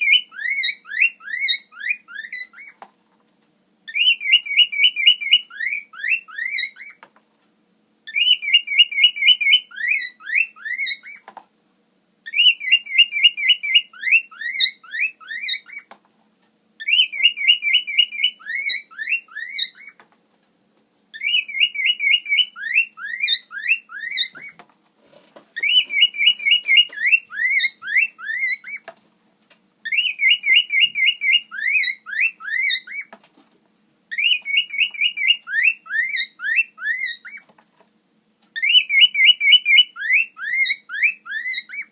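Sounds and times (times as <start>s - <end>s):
cockatiel whistling: 0.0s - 2.8s, 3.9s - 7.0s, 8.1s - 11.2s, 12.2s - 15.9s, 16.8s - 20.0s, 21.1s - 24.6s, 25.6s - 28.8s, 29.8s - 33.1s, 34.1s - 37.4s, 38.6s - 41.9s.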